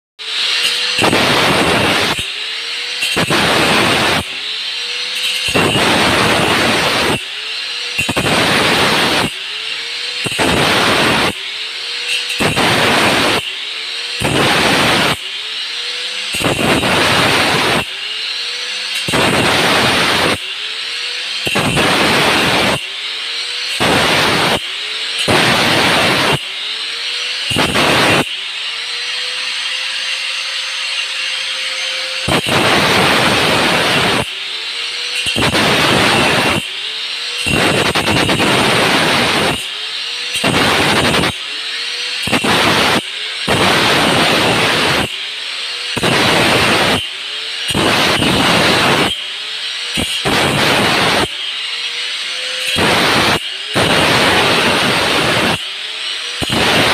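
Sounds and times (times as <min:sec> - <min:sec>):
rough grinding into hard material: 0:00.2 - 0:20.6
motor whine: 0:00.2 - 0:56.9
power tool cutting tile: 0:00.2 - 0:56.9.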